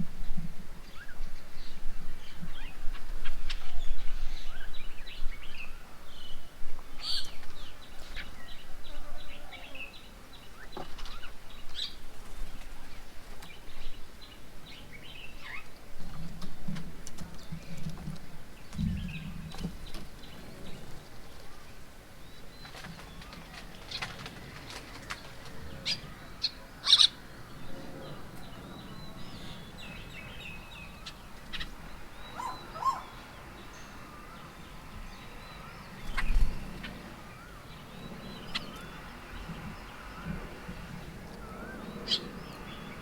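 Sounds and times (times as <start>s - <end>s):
birds chirping and calling: 0.3s - 43.0s
wing flaps: 22.6s - 26.0s, 36.0s - 37.2s.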